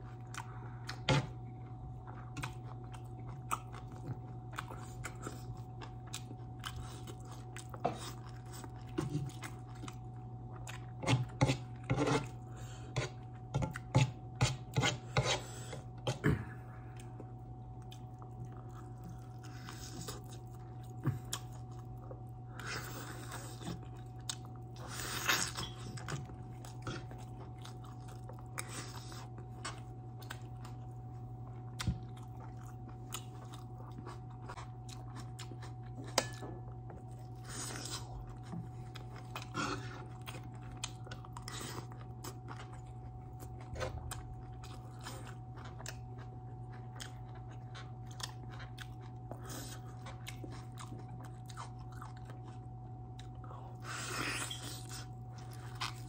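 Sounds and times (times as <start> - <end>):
steady low hum: 0.0 - 56.0
wet chewing sounds: 0.0 - 56.0
spoon scraping plate: 11.0 - 12.3, 13.0 - 15.6.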